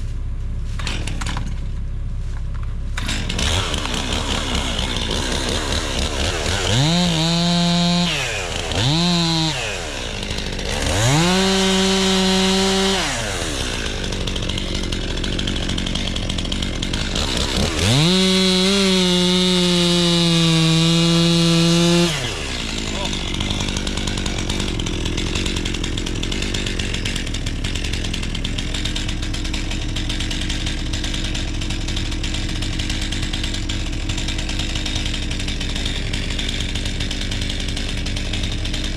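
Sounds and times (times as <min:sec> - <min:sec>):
chainsaw revving and idling: 0:00.7 - 0:01.6, 0:02.9 - 0:38.9.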